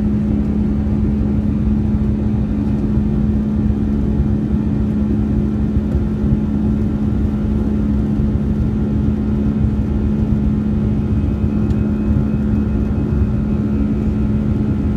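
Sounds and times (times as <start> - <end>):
high jet engine whine: 0.0 - 14.9
jet engine drone: 0.0 - 14.9.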